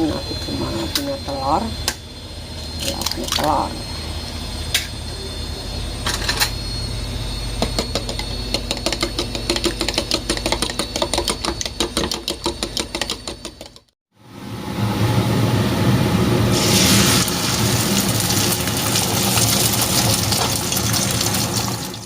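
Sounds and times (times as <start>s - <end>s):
utensil beating eggs in bowl: 7.6s - 14.0s.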